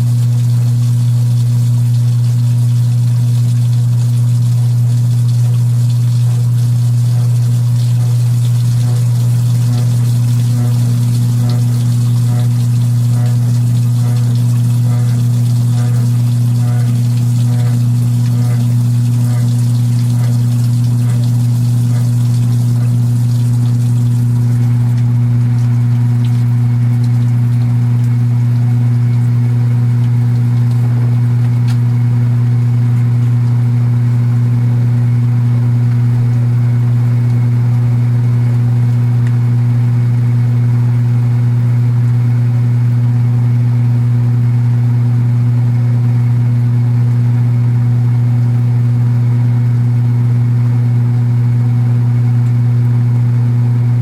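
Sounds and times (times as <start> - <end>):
water hissing: 0.0 - 25.0
washing machine motor hum: 0.0 - 54.0
cabinet buzz: 6.2 - 25.2.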